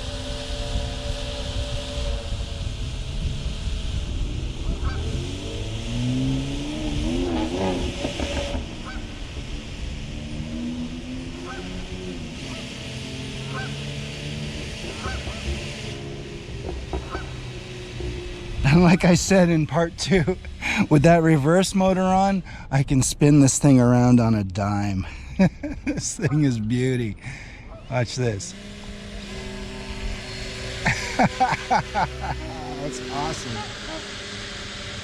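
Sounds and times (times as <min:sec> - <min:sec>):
wind noise on microphone: 0:00.0 - 0:09.0
electric boat motors whining: 0:00.0 - 0:24.3, 0:25.1 - 0:35.0
geese honking: 0:04.8 - 0:05.2, 0:08.8 - 0:09.3, 0:11.3 - 0:14.0, 0:14.8 - 0:15.9, 0:16.9 - 0:17.8, 0:27.5 - 0:34.2.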